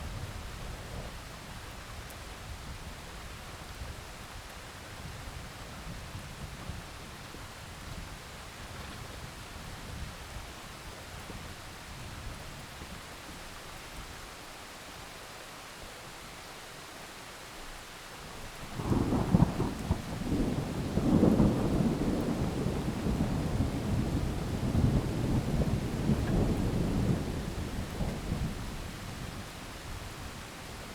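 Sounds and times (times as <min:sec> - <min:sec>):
heavy rain: 0:00.0 - 0:30.9
thunder rumbling: 0:18.8 - 0:29.6.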